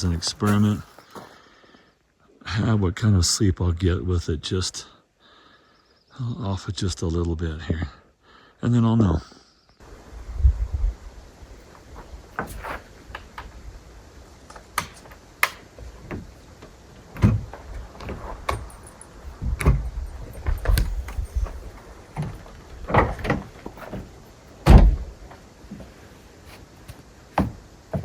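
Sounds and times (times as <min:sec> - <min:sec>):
objects handled and set down: 0:17.2 - 0:24.1.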